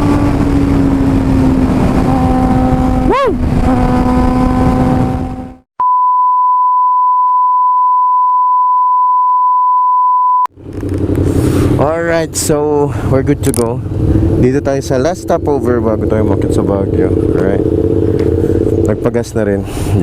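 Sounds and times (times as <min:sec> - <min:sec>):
heavy wind noise: 0:00.0 - 0:05.6, 0:10.6 - 0:20.0
motorcycle engine running: 0:00.0 - 0:05.6, 0:10.5 - 0:19.6
electronic beep tone: 0:05.8 - 0:10.5.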